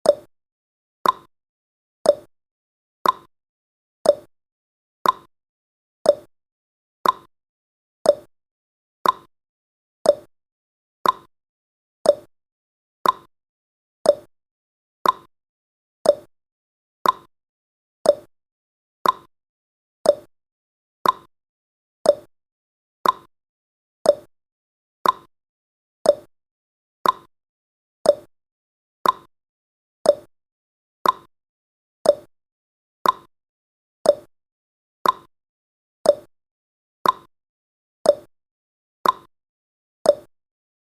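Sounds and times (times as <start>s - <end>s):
clock ticking: 3.0s - 3.3s, 5.0s - 5.3s, 7.0s - 7.3s, 9.0s - 9.3s, 11.0s - 11.3s, 13.0s - 13.3s, 15.0s - 15.3s, 16.1s - 16.3s, 17.0s - 17.3s, 18.1s - 18.3s, 19.0s - 19.3s, 20.1s - 20.3s, 21.0s - 21.3s, 22.1s - 22.3s, 23.0s - 23.3s, 24.1s - 24.3s, 25.0s - 25.3s, 26.1s - 26.3s, 27.0s - 27.3s, 29.0s - 29.3s, 30.1s - 30.3s, 31.0s - 31.3s, 32.1s - 32.3s, 33.0s - 33.3s, 34.1s - 34.3s, 35.0s - 35.3s, 36.1s - 36.3s, 37.0s - 37.3s, 38.1s - 38.3s, 39.0s - 39.3s, 40.1s - 40.3s.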